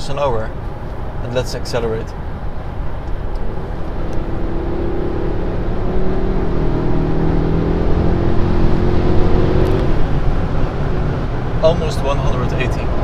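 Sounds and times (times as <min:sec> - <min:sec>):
road and wind rumble: 0:00.0 - 0:13.0
car engine accelerating: 0:02.0 - 0:13.0.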